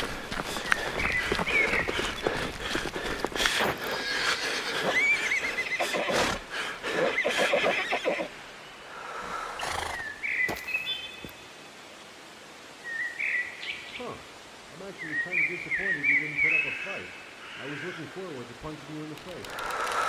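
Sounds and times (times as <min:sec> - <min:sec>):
horse whinnying: 0:03.8 - 0:08.3, 0:09.6 - 0:10.1.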